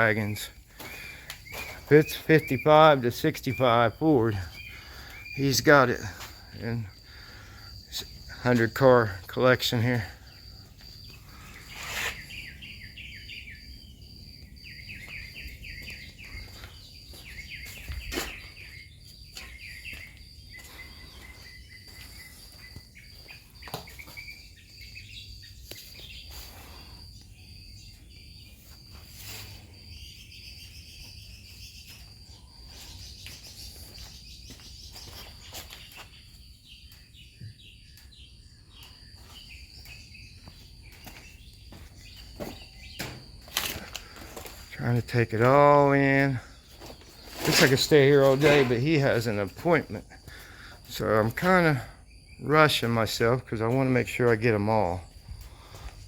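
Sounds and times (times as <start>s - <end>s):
birds chirping: 0.0s - 56.0s
high insect buzz: 10.2s - 36.8s.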